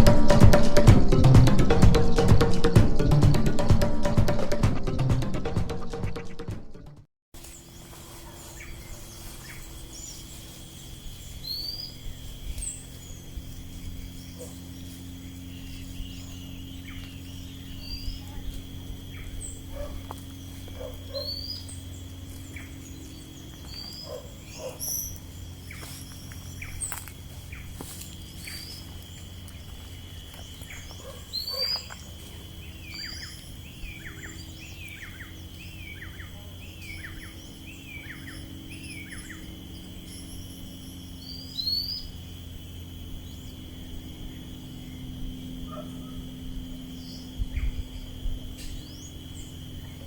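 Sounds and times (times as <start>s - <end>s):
birds chirping: 0.0s - 50.0s
insect drone: 7.4s - 50.0s
down-slurred whistled bird notes: 8.6s - 18.5s, 29.8s - 42.2s.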